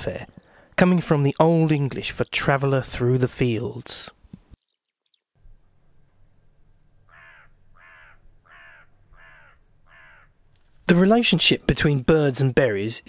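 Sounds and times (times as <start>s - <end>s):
bird call falling in pitch: 7.1s - 10.3s.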